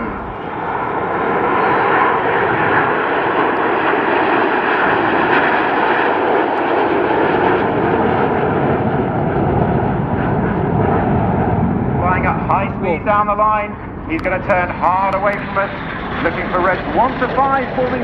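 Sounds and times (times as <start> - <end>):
jet noise: 0.0 - 18.0.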